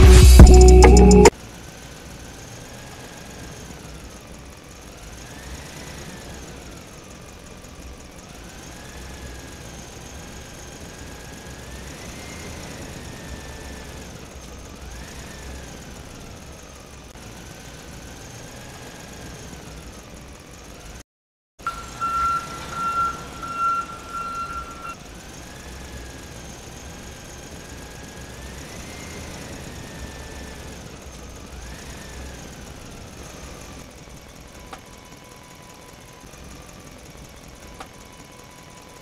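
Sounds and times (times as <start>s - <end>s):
loud high beeping tone: 0.0s - 1.3s, 21.6s - 25.0s
tractor engine rumbling: 21.6s - 28.6s.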